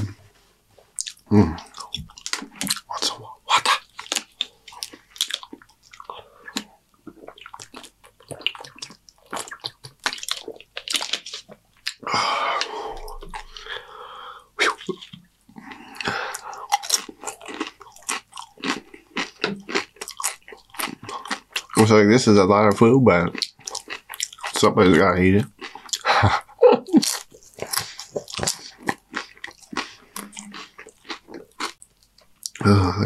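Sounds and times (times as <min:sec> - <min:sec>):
chewing crunchy chips: 0:00.9 - 0:13.9, 0:14.6 - 0:22.1, 0:22.8 - 0:33.0
breathy noise: 0:12.0 - 0:14.7.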